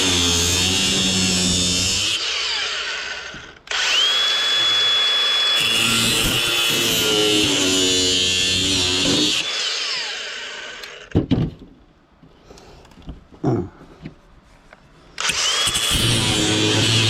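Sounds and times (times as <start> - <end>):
cut-off wheel grinding metal: 0.0 - 11.1, 15.2 - 17.0.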